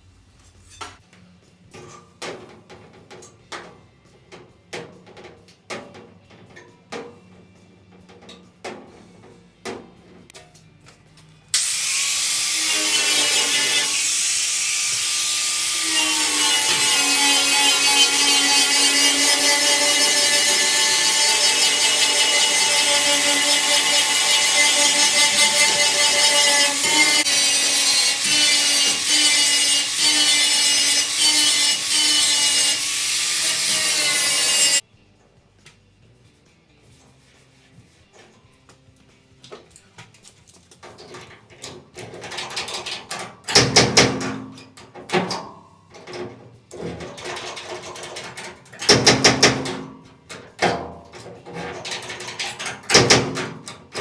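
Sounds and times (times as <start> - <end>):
power tool on steel panel: 11.6 - 34.8.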